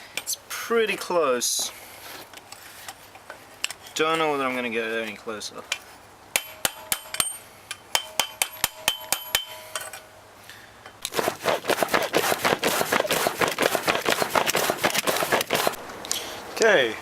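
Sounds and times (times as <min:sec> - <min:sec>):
hammer striking metal on anvil: 0:06.4 - 0:10.0.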